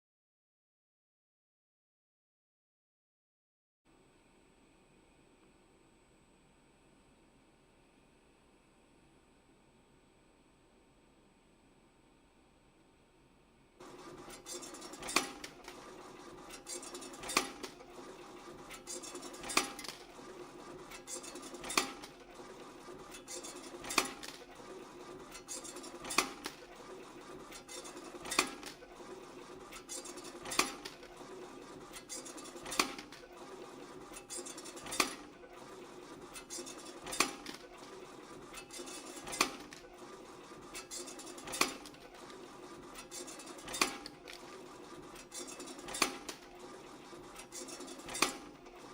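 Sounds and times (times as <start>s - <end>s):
wire bending machine humming: 13.8s - 48.9s.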